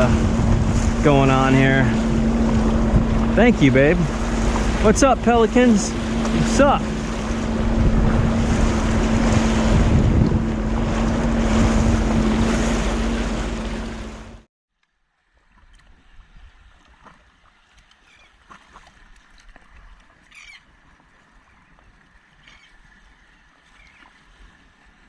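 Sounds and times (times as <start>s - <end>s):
watercraft engine humming: 0.0s - 14.5s
wind and water noise: 0.0s - 14.5s, 15.2s - 25.0s.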